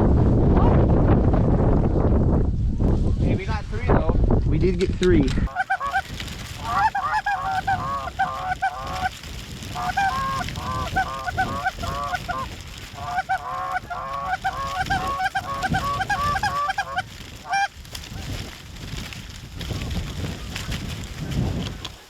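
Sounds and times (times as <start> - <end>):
low rumble of wind: 0.0 - 22.0
geese honking: 5.5 - 17.7.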